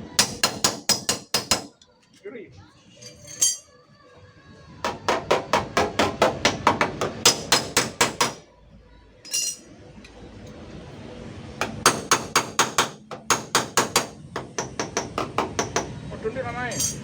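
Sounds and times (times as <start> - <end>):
short metallic clink: 9.3 - 9.6, 16.7 - 17.0.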